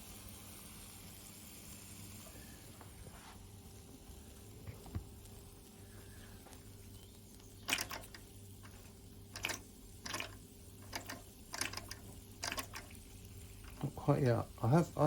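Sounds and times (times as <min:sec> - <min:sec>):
faint steady hum: 0:00.0 - 0:15.0
steam hiss puffs: 0:00.0 - 0:15.0.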